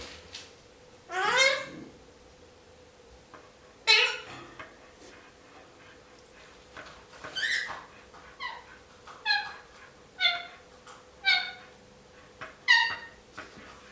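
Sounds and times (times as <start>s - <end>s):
parakeet calls: 1.1s - 1.7s, 3.9s - 4.3s, 7.4s - 7.8s, 10.2s - 10.6s, 11.2s - 11.6s, 12.7s - 13.2s.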